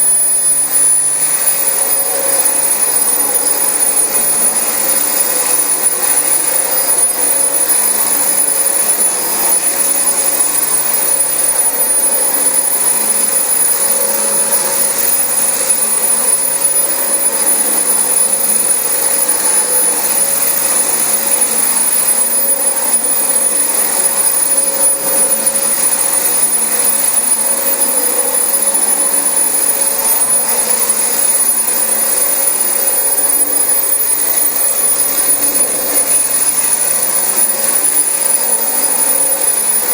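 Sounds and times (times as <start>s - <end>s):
upright vacuum cleaner running: 0.0s - 39.9s.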